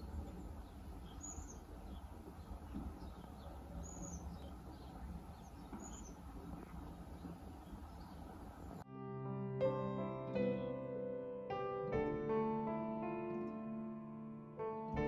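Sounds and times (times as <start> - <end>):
birds chirping: 0.0 - 8.8
low steady rumble: 0.0 - 8.8.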